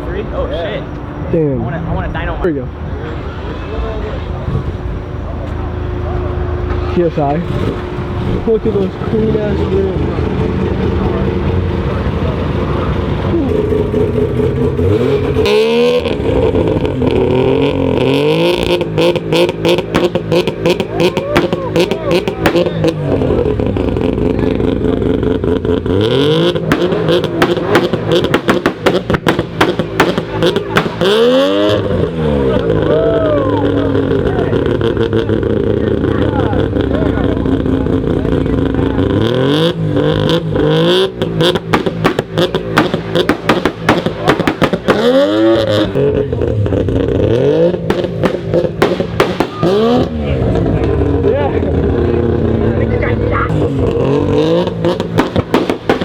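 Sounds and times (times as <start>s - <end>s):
sharp exhaust cracks: 2.0s - 56.0s
car engine revving hard: 5.8s - 56.0s
sharp cracks: 18.7s - 24.2s, 26.4s - 31.9s, 41.0s - 45.9s, 47.8s - 50.2s, 54.6s - 56.0s.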